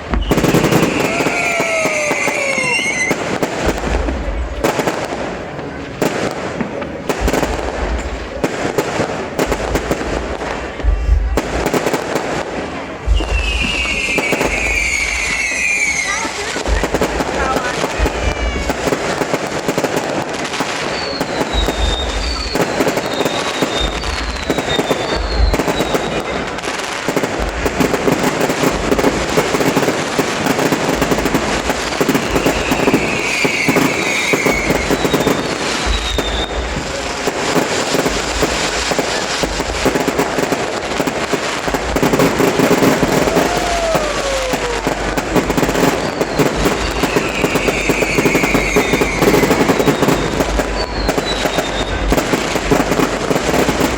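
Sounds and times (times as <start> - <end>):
fireworks booms: 0.0 - 53.9
fireworks crackling and popping: 0.0 - 53.9
falling whistles: 0.1 - 3.2, 13.1 - 16.4, 20.8 - 26.2, 32.3 - 36.8, 45.9 - 52.1.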